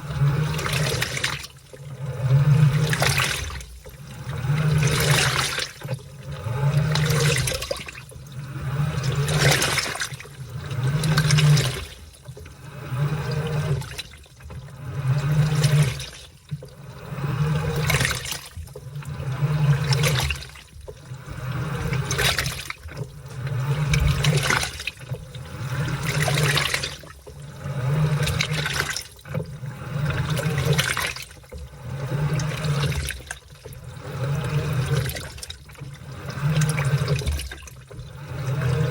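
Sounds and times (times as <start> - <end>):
washing machine motor humming: 0.0 - 38.9
washing machine water sloshing: 0.0 - 38.9.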